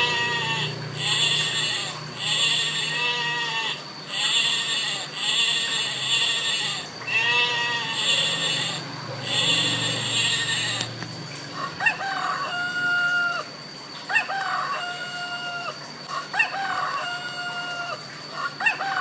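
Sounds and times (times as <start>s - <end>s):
goat or sheep bleating: 0.0s - 10.9s.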